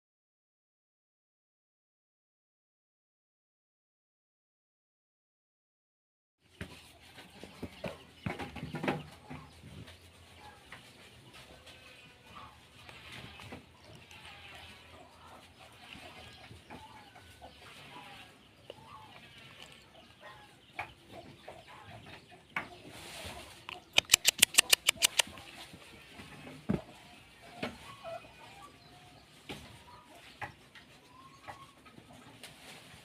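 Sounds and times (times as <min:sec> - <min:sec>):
chickens clucking: 0:06.5 - 0:33.0
sharp loud clicks: 0:23.9 - 0:25.3.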